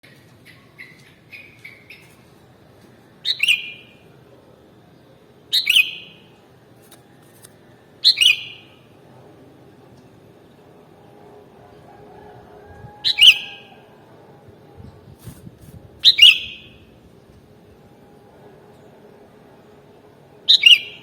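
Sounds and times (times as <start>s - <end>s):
bulbul singing whistled phrases: 3.2s - 4.0s, 5.5s - 6.3s, 8.0s - 8.8s, 13.0s - 13.8s, 16.0s - 16.9s, 20.5s - 21.0s.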